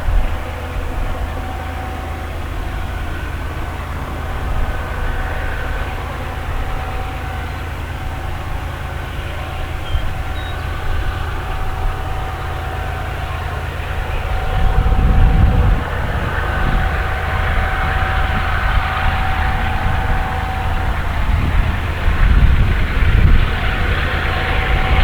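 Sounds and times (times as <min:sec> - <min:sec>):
train passing rumble: 0:00.0 - 0:25.0.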